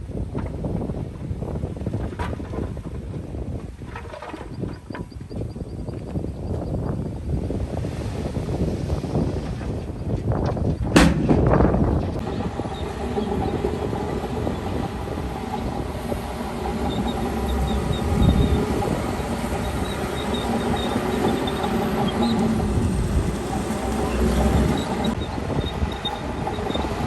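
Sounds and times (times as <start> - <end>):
diesel earthmoving machinery: 7.5 - 27.0.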